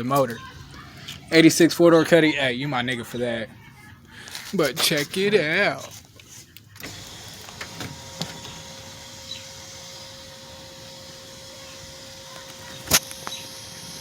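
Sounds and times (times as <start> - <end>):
sunroof motor whirring: 6.8 - 14.0.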